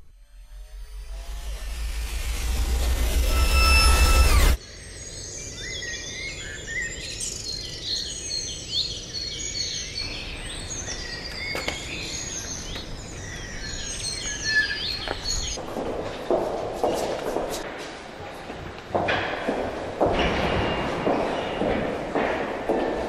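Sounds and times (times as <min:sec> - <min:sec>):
small birds chirping and singing: 0:03.4 - 0:15.6.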